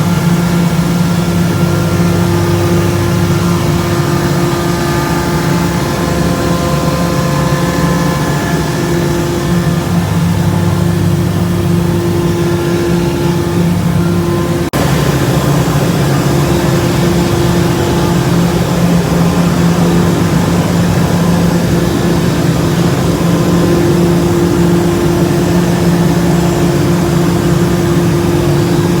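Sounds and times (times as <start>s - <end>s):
centrifugal separators machinery hum: 0.0s - 29.0s.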